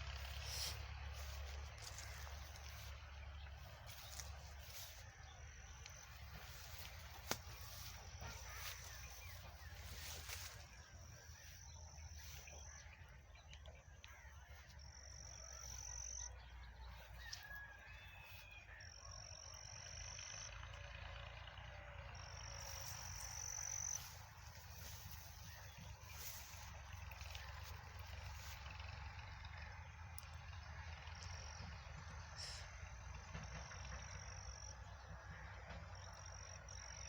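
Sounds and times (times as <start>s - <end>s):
low rumble: 0.0s - 17.2s, 22.2s - 28.8s
high buzzing animal calls: 0.0s - 19.4s, 22.2s - 29.9s
faint chirps: 0.0s - 20.8s, 22.1s - 30.4s.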